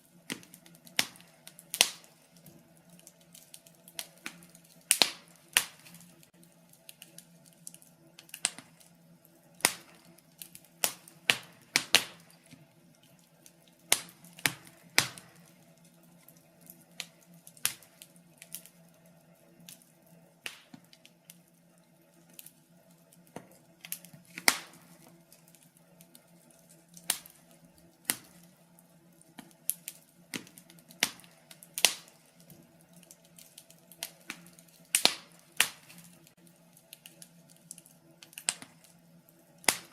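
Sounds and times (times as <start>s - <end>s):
faint steady hum: 0.0s - 39.9s
log fire crackling and popping: 0.0s - 39.9s.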